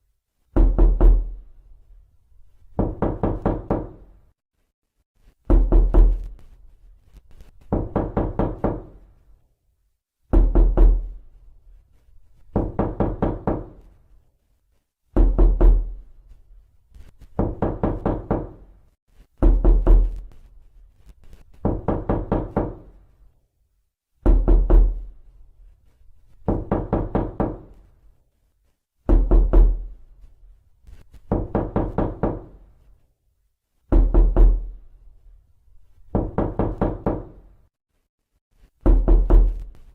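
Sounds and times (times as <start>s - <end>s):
knocking on a door: 0.6s - 1.4s, 2.7s - 4.1s, 5.4s - 6.3s, 7.6s - 9.0s, 10.3s - 11.2s, 12.5s - 13.9s, 15.2s - 16.0s, 17.3s - 18.7s, 19.4s - 20.3s, 21.6s - 22.9s, 24.2s - 25.1s, 26.4s - 27.8s, 29.1s - 29.9s, 31.3s - 32.6s, 33.9s - 34.7s, 36.1s - 37.5s, 38.8s - 39.7s.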